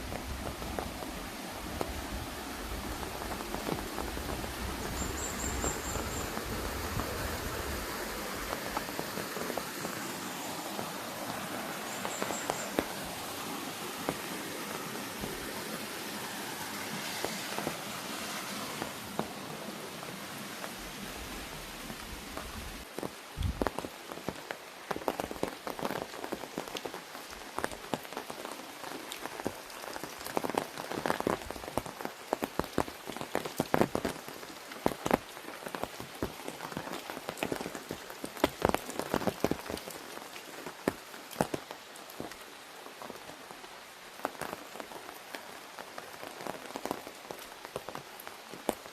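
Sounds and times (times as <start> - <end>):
rain hiss: 0.0 - 48.9
raindrops tapping an umbrella: 0.0 - 48.9.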